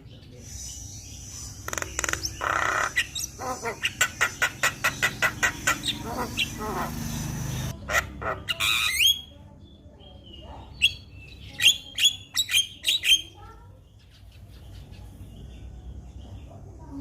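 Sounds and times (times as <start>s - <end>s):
bird singing harsh notes: 0.4s - 9.4s.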